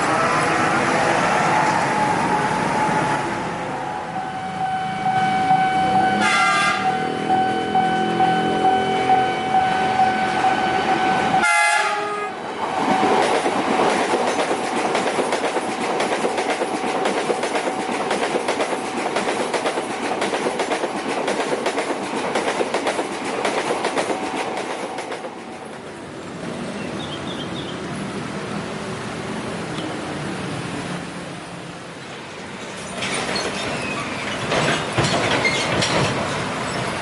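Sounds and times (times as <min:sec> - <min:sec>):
train horn: 0:04.2 - 0:12.4
train wheels clattering over rails: 0:12.6 - 0:26.0, 0:32.4 - 0:37.0.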